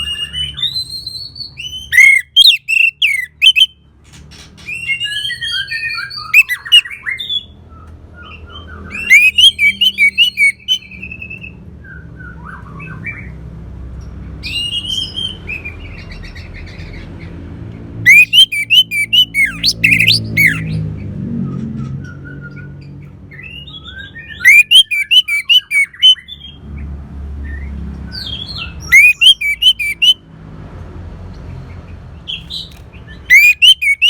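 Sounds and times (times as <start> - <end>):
thrush singing: 9.0 - 10.8, 18.1 - 20.7, 24.4 - 26.2, 28.9 - 30.2, 32.5 - 34.0.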